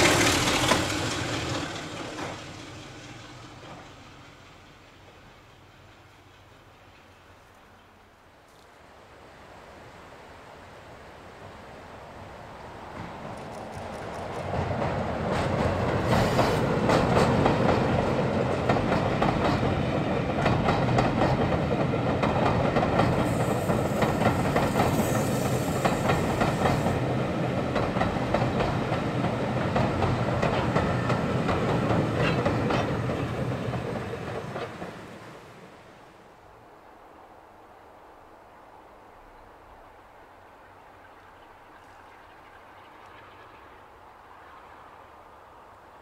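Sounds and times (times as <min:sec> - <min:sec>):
wheels clicking over rail joints: 0:00.0 - 0:07.9, 0:13.0 - 0:35.3.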